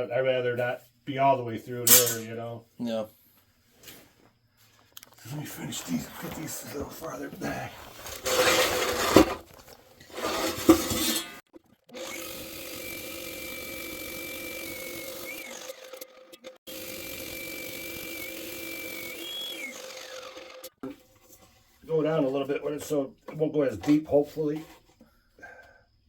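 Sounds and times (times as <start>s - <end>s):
concrete saw cutting: 5.9s - 9.4s, 10.1s - 21.2s
loud knock or scrape: 8.2s - 9.4s, 10.1s - 11.4s.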